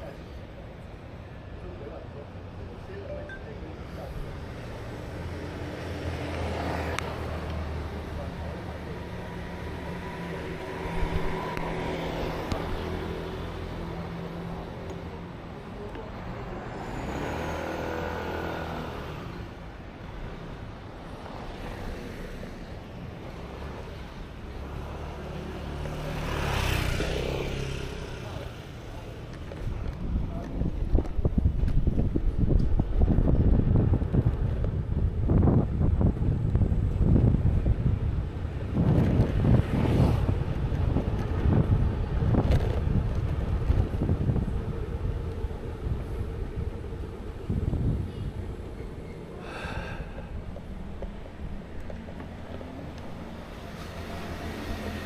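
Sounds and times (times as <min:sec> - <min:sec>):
traffic engine hum: 0:00.0 - 0:55.0
vehicle passing: 0:04.0 - 0:29.1, 0:32.8 - 0:55.0
wind buffeting microphone: 0:29.5 - 0:55.0
low rumbling noise: 0:29.6 - 0:54.8.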